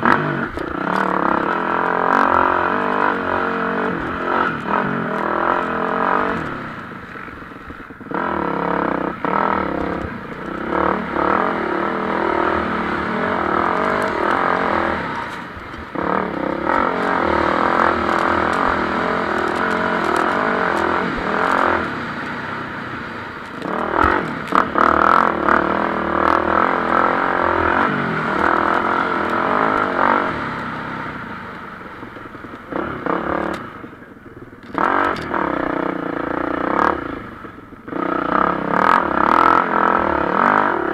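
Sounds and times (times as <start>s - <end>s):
motocross bikes revving: 0.0s - 40.9s.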